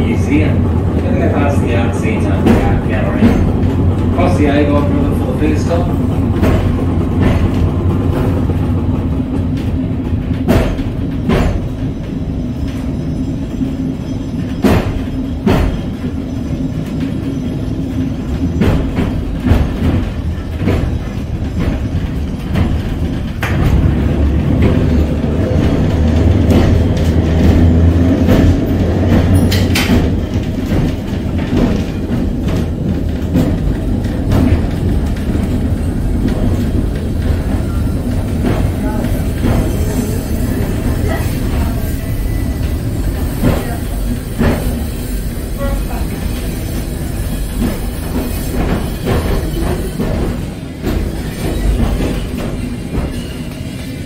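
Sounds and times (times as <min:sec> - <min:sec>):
tram motor and wheel rumble: 0:00.0 - 0:54.0
wheels knocking on track: 0:00.0 - 0:54.0.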